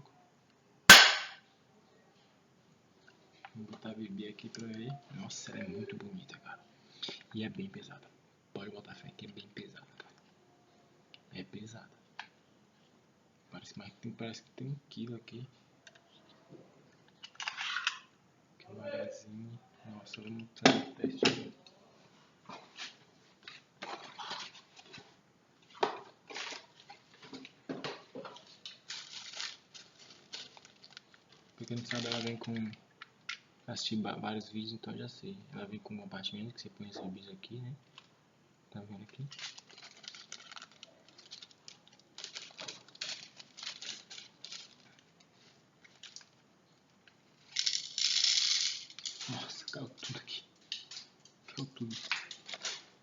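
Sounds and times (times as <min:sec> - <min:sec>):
clicks and scrapes of pistol parts: 0:17.2 - 0:18.0
metal parts rattling and clicking: 0:47.5 - 0:49.3.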